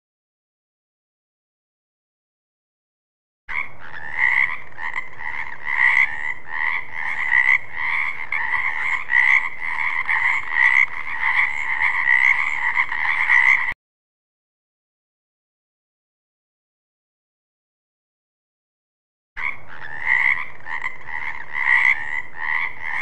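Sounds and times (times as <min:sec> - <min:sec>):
frog croaking: 0:03.5 - 0:13.8, 0:19.4 - 0:23.0.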